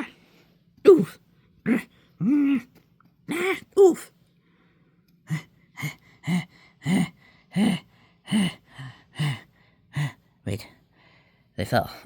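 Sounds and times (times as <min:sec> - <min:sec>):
person gasping: 0:04.4 - 0:11.5.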